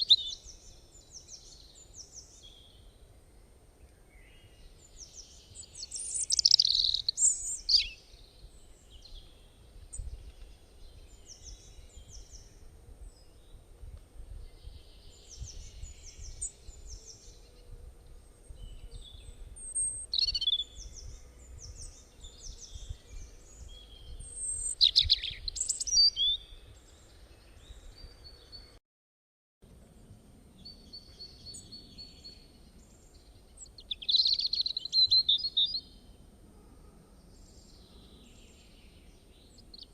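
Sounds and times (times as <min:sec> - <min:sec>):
birds chirping: 0:03.8 - 0:12.6, 0:14.6 - 0:28.8, 0:30.6 - 0:36.2.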